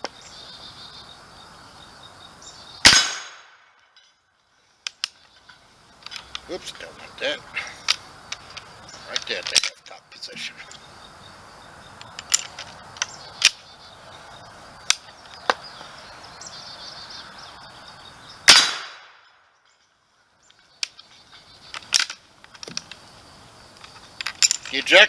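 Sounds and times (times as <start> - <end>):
rifle shot: 2.8 - 3.7, 18.5 - 19.2
rifle hammer and breech clicks: 12.0 - 13.6, 21.7 - 23.0.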